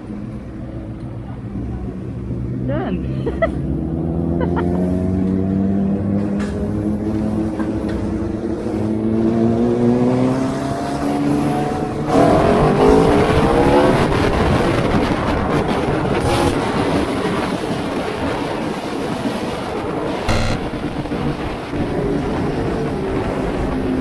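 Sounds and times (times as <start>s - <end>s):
motorcycle engine accelerating: 20.3s - 22.0s.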